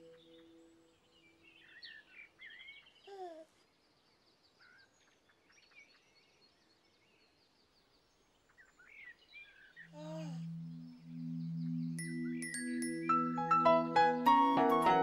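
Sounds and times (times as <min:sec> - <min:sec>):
low musical tones: 0:00.0 - 0:01.8, 0:09.9 - 0:15.0
faint birdsong: 0:00.0 - 0:15.0.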